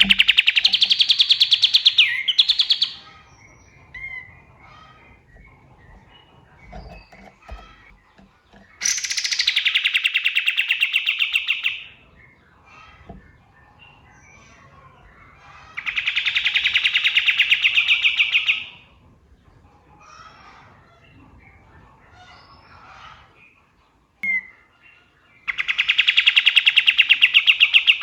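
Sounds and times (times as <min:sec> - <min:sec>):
songbird rattling trills: 0:00.0 - 0:12.1
faint bird chirps: 0:00.0 - 0:18.8, 0:20.0 - 0:28.0.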